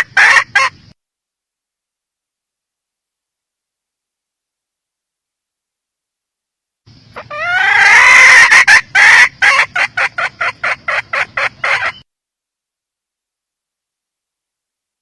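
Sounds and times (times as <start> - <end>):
junglefowl hen calling: 0.0 - 1.0, 6.9 - 12.1.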